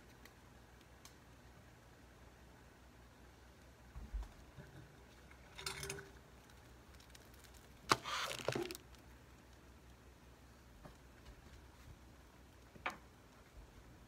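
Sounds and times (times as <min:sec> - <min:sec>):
tongs rattling: 0:05.5 - 0:06.2.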